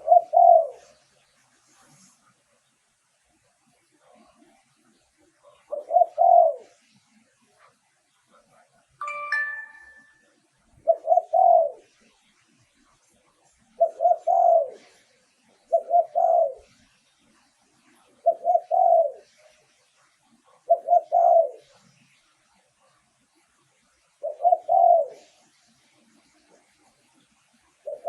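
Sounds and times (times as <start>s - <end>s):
dove cooing: 0.0s - 1.0s, 5.5s - 6.8s, 10.8s - 12.0s, 13.7s - 15.0s, 15.7s - 16.7s, 18.2s - 19.4s, 20.5s - 21.8s, 24.2s - 25.4s.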